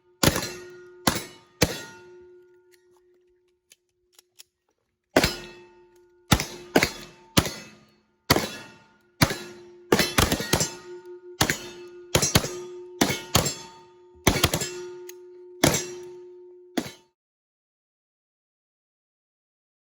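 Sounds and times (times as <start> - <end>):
steel targets ringing: 0.1 - 2.7, 5.2 - 17.0
pistol shots: 0.2 - 2.1, 5.2 - 5.6, 6.3 - 14.9.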